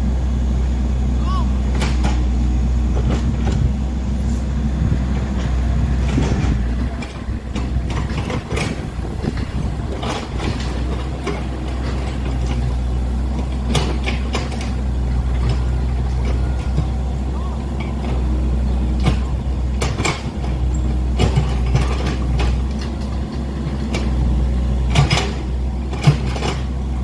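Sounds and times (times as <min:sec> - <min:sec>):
dump truck engine running: 0:00.0 - 0:27.0
short hisses: 0:04.2 - 0:04.6.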